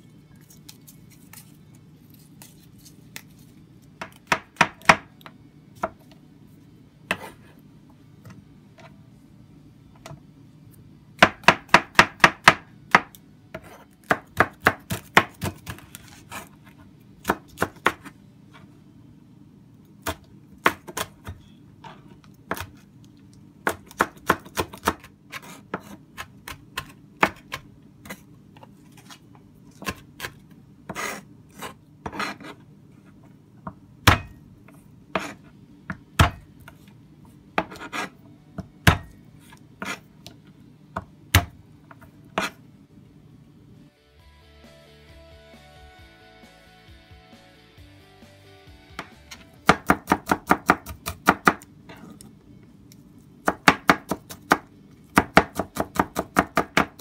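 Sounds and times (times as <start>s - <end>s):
knife chopping on plastic board: 4.0s - 5.1s, 11.2s - 16.5s, 22.4s - 22.8s, 23.6s - 28.2s, 33.6s - 34.4s, 35.1s - 36.8s, 37.6s - 39.2s, 41.0s - 41.6s, 49.0s - 51.7s, 53.4s - 57.0s.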